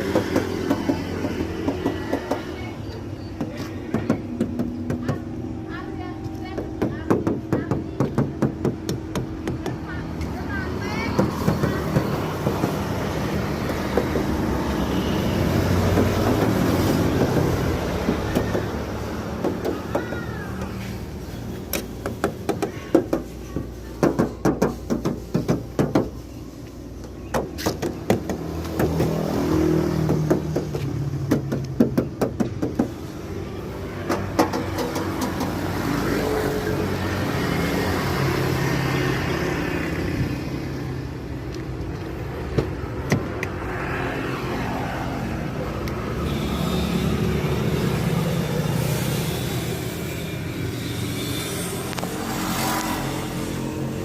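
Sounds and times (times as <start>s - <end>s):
road traffic: 0.0s - 54.0s
tapping on sheet metal panels: 21.7s - 26.2s, 30.0s - 33.0s, 34.1s - 35.6s.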